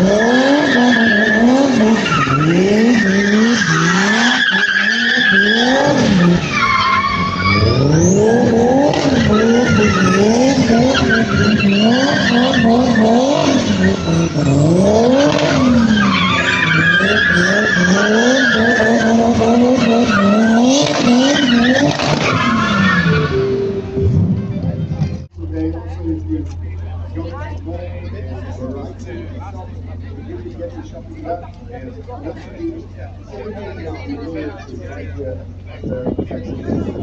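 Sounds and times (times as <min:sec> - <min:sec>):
tyre squeal: 0:00.0 - 0:24.1
car engine revving: 0:00.0 - 0:37.0.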